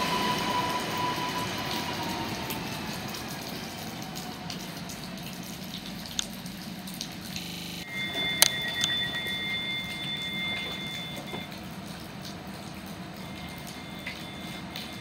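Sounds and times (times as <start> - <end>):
train rolling noise: 0.0 - 4.8
faint high motor whine: 7.3 - 11.5
high electronic beep: 7.5 - 11.5.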